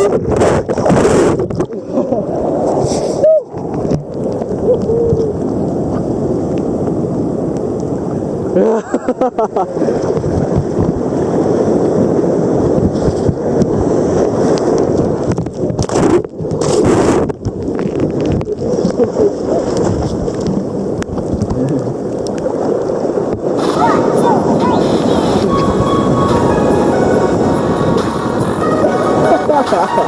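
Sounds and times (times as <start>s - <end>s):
wind buffeting microphone: 0.0s - 8.6s, 9.7s - 30.0s
ocean surf breaking: 23.0s - 30.0s
short voice: 23.6s - 25.6s.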